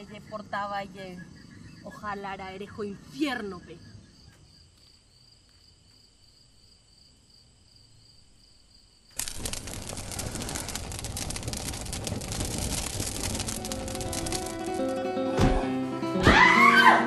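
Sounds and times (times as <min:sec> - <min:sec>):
insects chirping: 0:00.0 - 0:15.2
fire crackling: 0:09.0 - 0:15.6.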